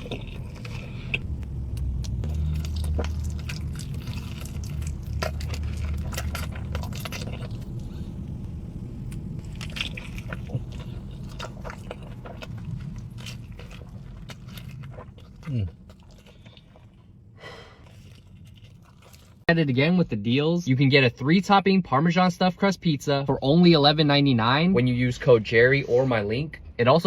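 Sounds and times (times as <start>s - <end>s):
chewing and crunching food: 0.0s - 19.5s
low hum: 0.0s - 27.0s.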